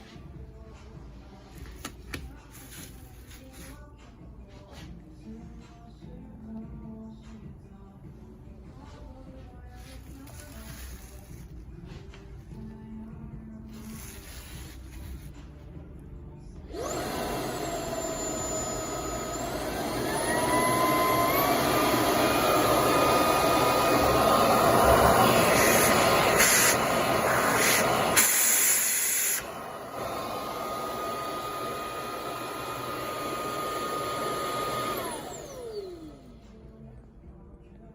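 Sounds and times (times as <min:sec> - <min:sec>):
vacuum cleaner motor whining: 0:16.7 - 0:36.3.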